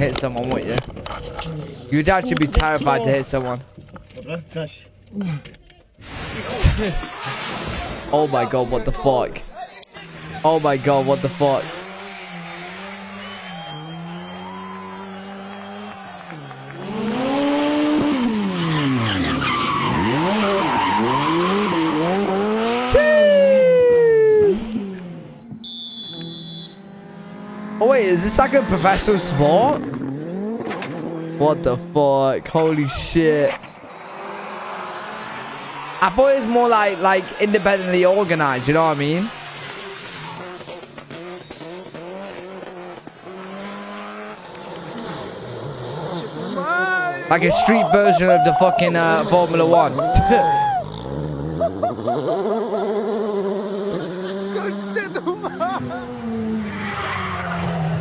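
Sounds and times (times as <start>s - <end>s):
exhaust cracks: 0.0s - 8.1s, 32.4s - 46.6s
rally car engine revving: 0.0s - 8.1s, 9.9s - 58.0s.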